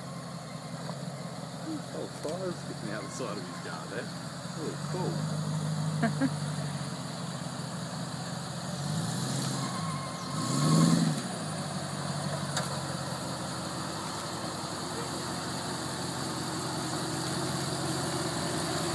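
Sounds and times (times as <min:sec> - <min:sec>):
car engine revving: 0:01.5 - 0:18.9.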